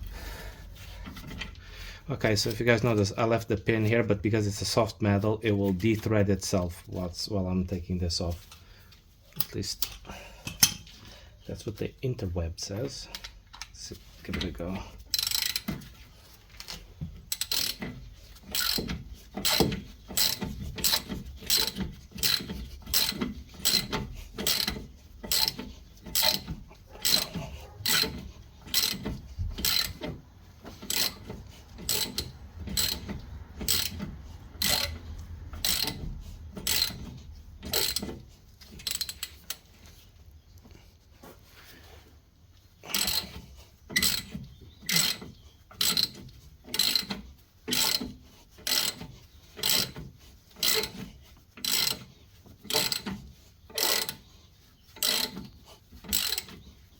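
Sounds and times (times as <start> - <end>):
ratchet wrench clicking: 15.1 - 15.9, 16.6 - 30.1, 30.8 - 39.6, 42.9 - 50.0, 50.6 - 51.0, 51.6 - 52.1, 52.7 - 54.2, 54.9 - 56.6.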